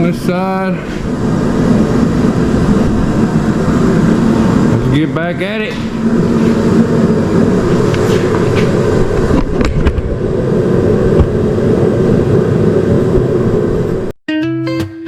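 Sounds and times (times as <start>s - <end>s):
space heater running: 0.0s - 14.2s.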